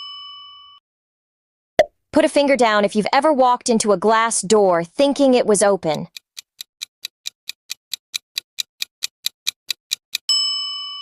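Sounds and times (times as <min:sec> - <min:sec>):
fast clock-like ticking: 0:05.7 - 0:10.3
bright bell ding: 0:10.3 - 0:11.0.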